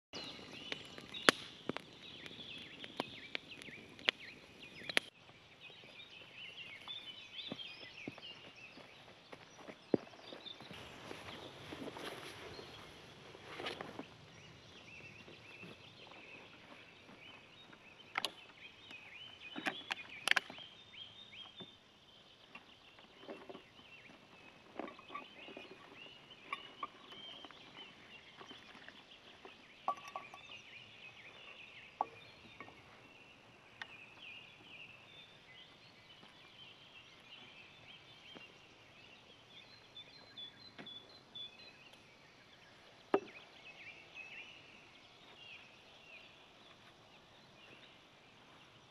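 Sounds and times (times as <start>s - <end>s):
birds chirping: 0.1s - 48.9s
sharp cracks or snaps: 0.7s - 1.9s.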